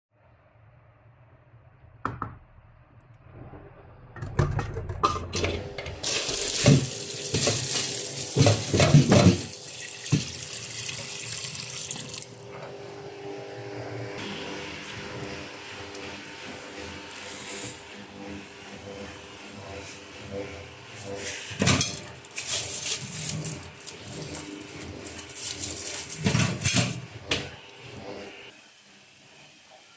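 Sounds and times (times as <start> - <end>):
things clattering in sink: 4.2 - 11.3, 21.6 - 27.5
tap water running into sink: 6.0 - 12.4.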